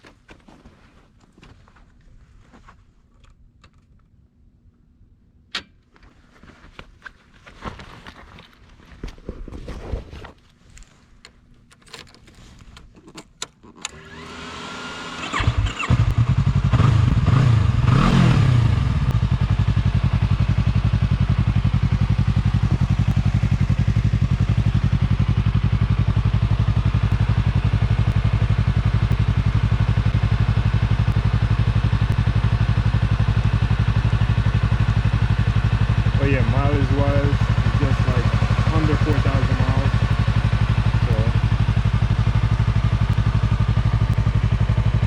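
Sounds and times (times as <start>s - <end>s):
motorcycle engine revving and idling: 14.0s - 45.0s.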